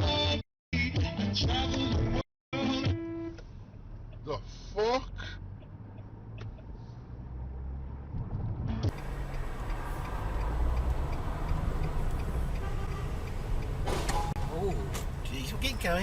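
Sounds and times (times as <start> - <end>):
car engine and road rumble: 3.2 - 16.0
hissy road noise: 8.9 - 16.0.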